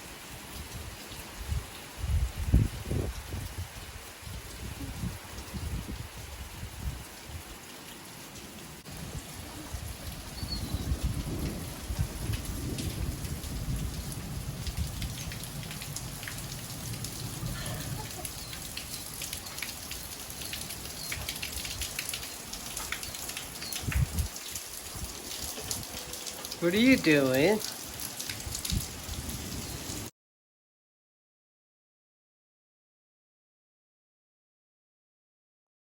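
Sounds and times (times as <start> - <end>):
rain falling: 0.0 - 30.1
low rumble of thunder: 8.9 - 18.8, 23.8 - 24.4.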